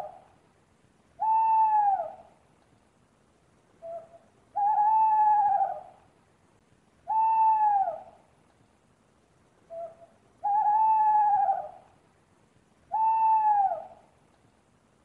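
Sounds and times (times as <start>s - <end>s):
owl hooting: 1.2s - 2.4s, 3.8s - 6.0s, 7.0s - 8.2s, 9.7s - 11.9s, 12.9s - 14.1s.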